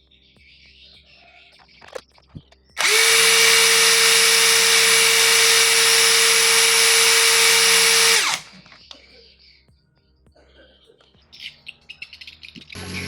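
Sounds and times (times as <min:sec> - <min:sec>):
impact driver whine: 0:02.8 - 0:08.6, 0:12.8 - 0:13.0.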